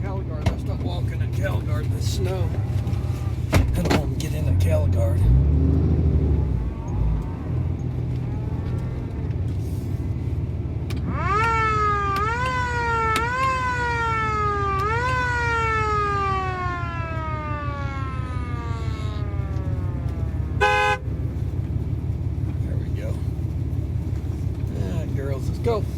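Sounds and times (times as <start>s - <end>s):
truck engine running: 0.0s - 25.9s
siren wailing: 6.2s - 9.4s, 11.0s - 21.0s.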